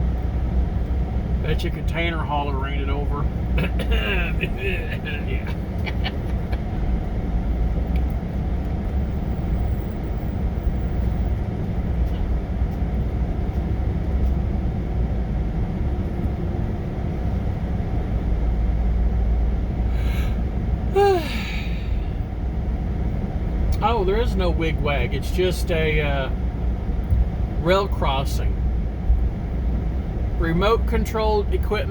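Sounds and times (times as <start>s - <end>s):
truck engine rumble from cab: 0.0s - 31.9s.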